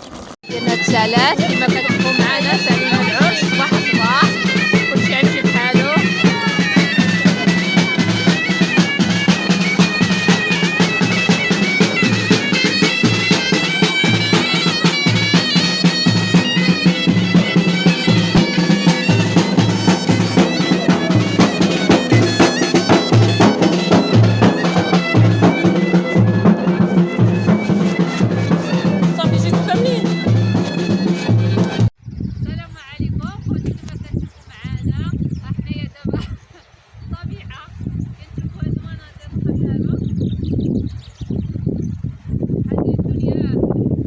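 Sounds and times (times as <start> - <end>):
drum beating: 0.4 - 31.9
shrill reed wind instrument: 0.4 - 31.9.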